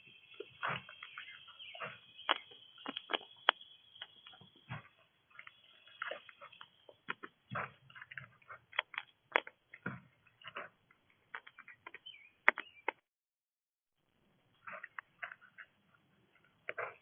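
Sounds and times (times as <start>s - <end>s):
animal cracking seed: 0.4s - 4.5s, 5.3s - 9.9s.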